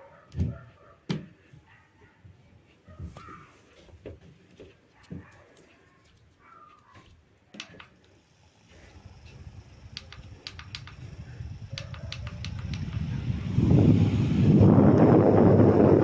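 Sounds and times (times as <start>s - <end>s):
light clicks: 7.6s - 13.2s
desk fan spinning: 7.6s - 16.0s.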